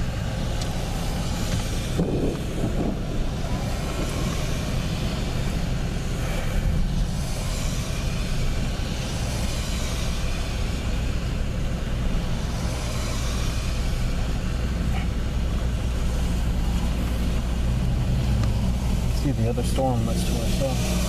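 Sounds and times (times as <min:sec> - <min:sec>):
vehicle cabin rumble: 0:00.0 - 0:21.0
rushing hiss: 0:12.2 - 0:14.9.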